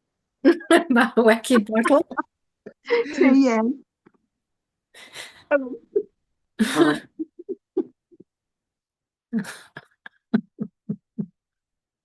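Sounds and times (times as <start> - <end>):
person laughing: 0.5 - 2.2, 5.9 - 8.2, 9.4 - 11.4.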